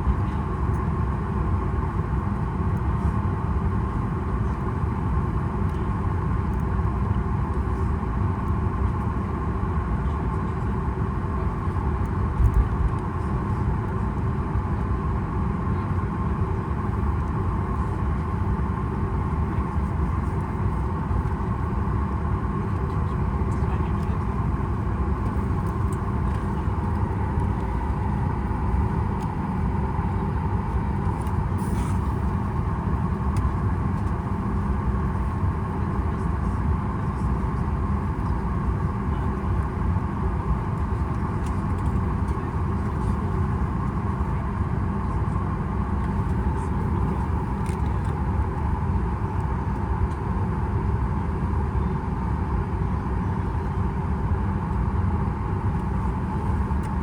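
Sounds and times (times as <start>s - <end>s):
aircraft cabin rumble: 0.0s - 57.0s.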